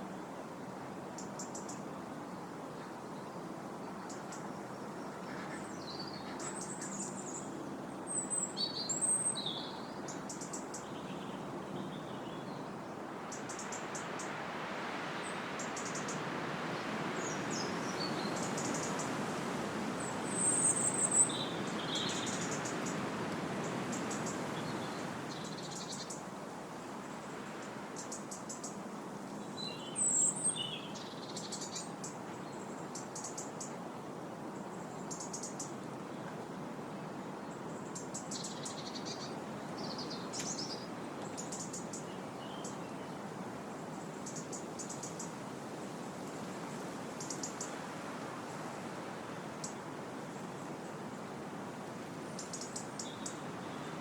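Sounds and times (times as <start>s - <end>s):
wind blowing through trees: 0.0s - 54.0s
small birds chirping: 37.9s - 43.1s, 52.4s - 54.0s.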